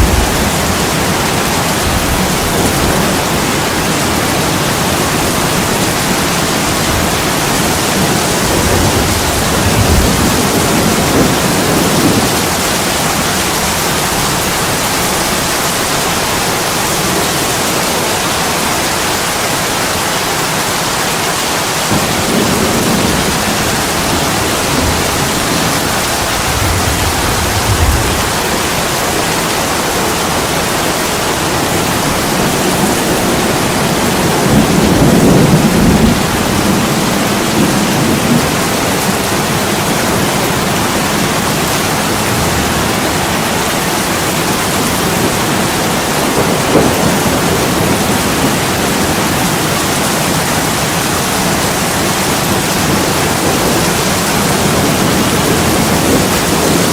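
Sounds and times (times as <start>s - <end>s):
deep low rumbles: 0.0s - 1.2s
heavy rain on a window: 0.0s - 56.9s.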